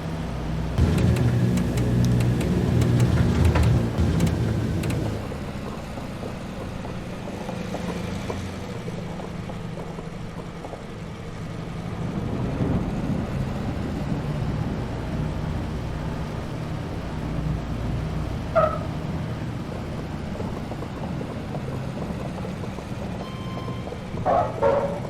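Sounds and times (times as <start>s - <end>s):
piston aircraft engines droning: 0.0s - 25.0s
sharp rattling clicks: 0.8s - 5.4s.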